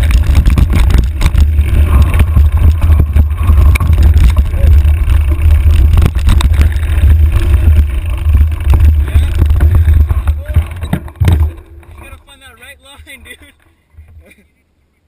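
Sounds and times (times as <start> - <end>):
wind buffeting microphone: 0.0 - 11.6
bike knocks and rattles: 0.0 - 14.3.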